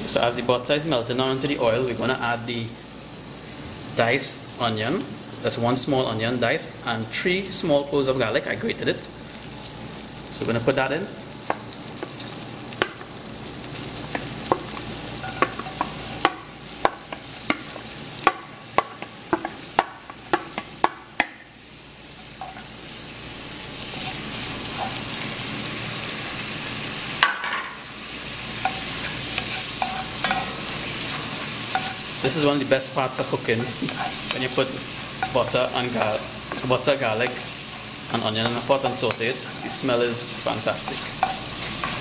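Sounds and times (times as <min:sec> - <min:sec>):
onion and garlic sizzling: 0:00.0 - 0:42.0
spoon knocking and scraping pot: 0:14.1 - 0:21.3, 0:28.6 - 0:30.8, 0:31.7 - 0:32.0, 0:40.8 - 0:42.0.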